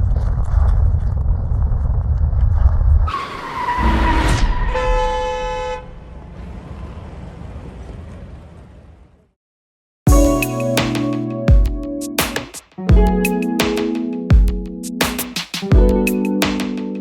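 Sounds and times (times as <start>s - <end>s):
wind: 0.0s - 9.4s
vehicle horn: 4.7s - 6.0s.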